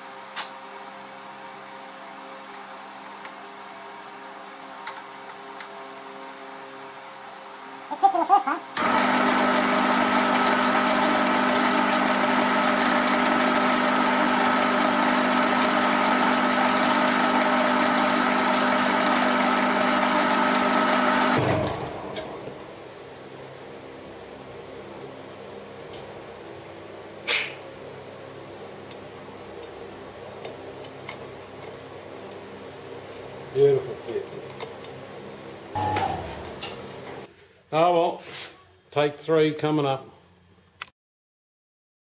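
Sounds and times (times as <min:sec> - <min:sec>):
lathe mechanical whine: 0:08.8 - 0:22.6, 0:35.8 - 0:36.9
lathe low hum: 0:08.8 - 0:23.0, 0:35.8 - 0:37.3.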